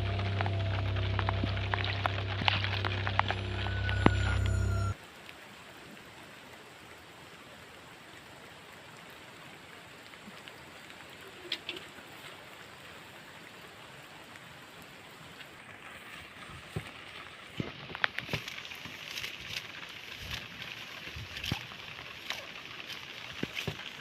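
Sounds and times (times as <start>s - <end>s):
steady rain: 0.0s - 24.0s
sharp knocks or splashes: 17.6s - 20.5s, 21.1s - 24.0s.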